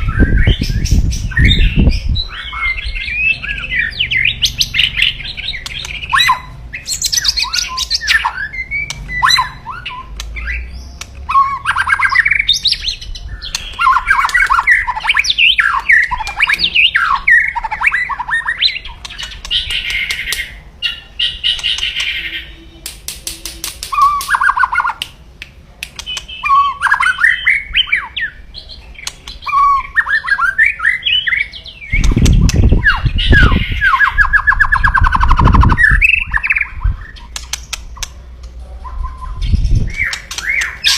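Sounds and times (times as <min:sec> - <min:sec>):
bird harsh calls and song: 0:00.0 - 0:40.9.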